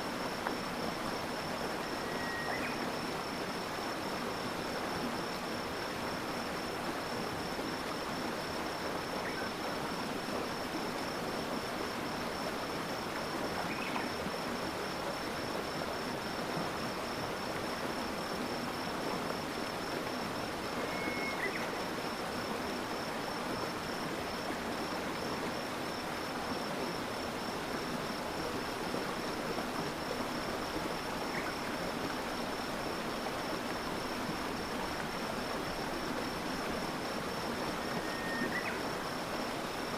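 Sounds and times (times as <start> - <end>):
stream water flowing: 0.0 - 39.9
high-pitched insect trill: 1.8 - 3.4, 20.6 - 21.7, 37.8 - 39.2.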